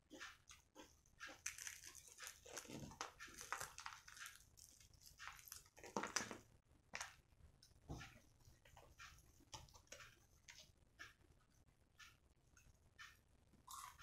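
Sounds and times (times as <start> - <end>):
chewing crispy fried chicken: 0.1 - 6.3, 13.7 - 14.0.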